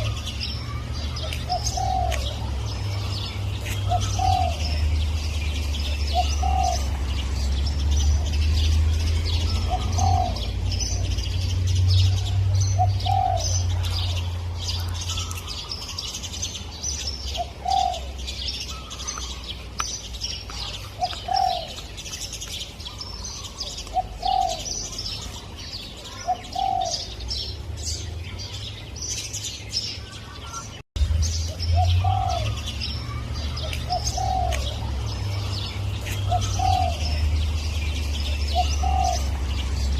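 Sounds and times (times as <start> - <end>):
small birds chirping: 0.0 - 39.9
dove cooing: 0.9 - 4.9, 5.8 - 7.0, 9.4 - 11.2, 12.1 - 14.2, 17.3 - 19.4, 20.9 - 21.9, 22.9 - 25.2, 26.0 - 27.2, 31.8 - 35.1, 36.0 - 37.4, 38.2 - 39.8.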